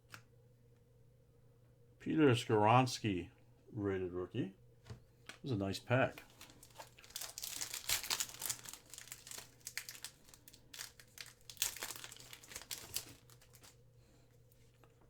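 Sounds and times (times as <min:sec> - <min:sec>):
plastic wrapper crinkling and tearing: 0:06.3 - 0:13.8.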